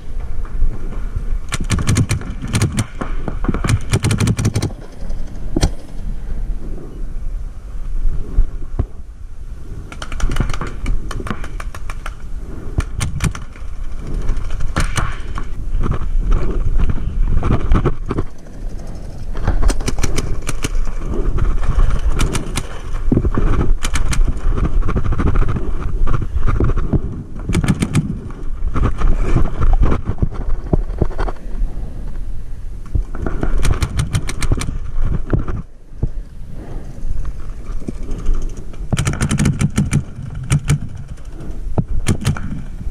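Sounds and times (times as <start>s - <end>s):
wind rumble on camera: 0.0s - 42.9s
paintball markers firing: 1.5s - 6.0s, 26.4s - 28.2s, 33.2s - 34.8s, 38.9s - 41.4s, 42.0s - 42.7s.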